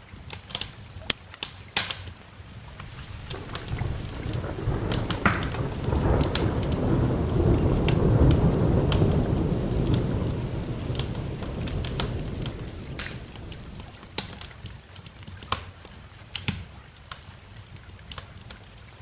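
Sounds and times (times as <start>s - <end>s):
steady rain: 0.0s - 19.0s
wood fire crackling: 1.0s - 18.8s
thunder rolling: 2.7s - 14.2s.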